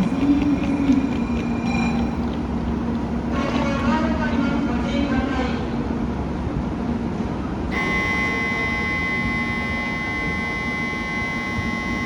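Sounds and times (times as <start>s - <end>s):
low hum from a train: 0.0s - 12.0s
electronic buzzer tone: 7.7s - 12.0s.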